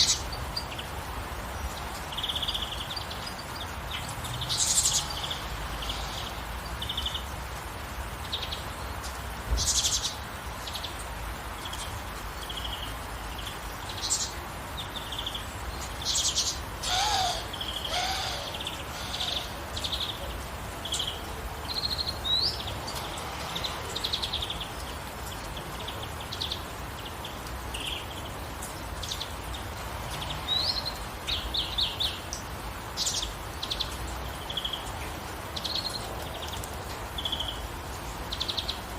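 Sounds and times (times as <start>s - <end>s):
gentle rain hiss: 0.0s - 38.9s
birds chirping and singing: 13.5s - 22.8s.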